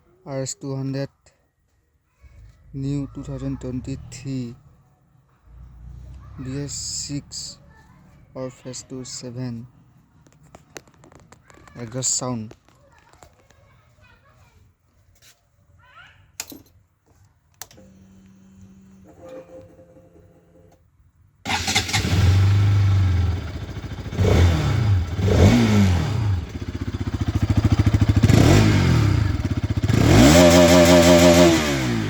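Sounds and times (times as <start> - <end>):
motorcycle engine idling and revving: 21.5 - 32.0.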